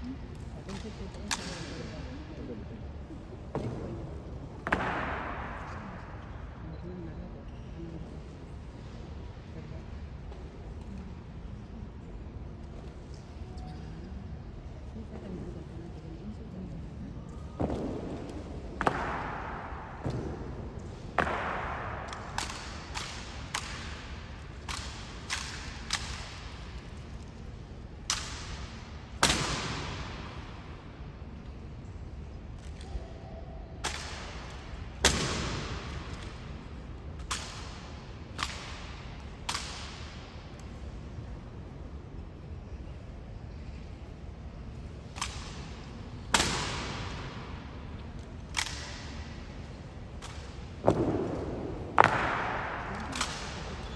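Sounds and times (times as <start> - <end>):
rifles slapped and caught: 0.4 - 1.9, 3.5 - 6.2, 17.5 - 27.3, 28.0 - 30.7, 33.8 - 40.8, 45.1 - 53.9
rifle butts and boots striking floor: 17.6 - 24.0, 50.2 - 53.9.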